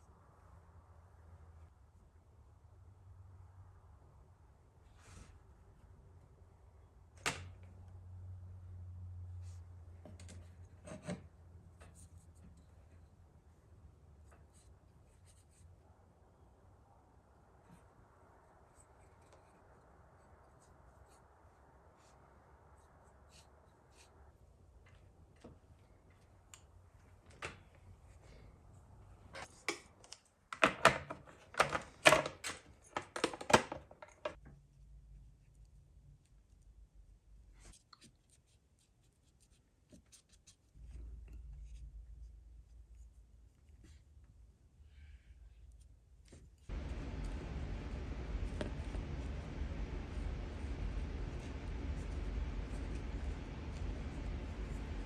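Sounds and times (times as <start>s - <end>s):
low steady hum: 34.3s - 55.0s
art materials tapping and rubbing: 46.2s - 55.0s.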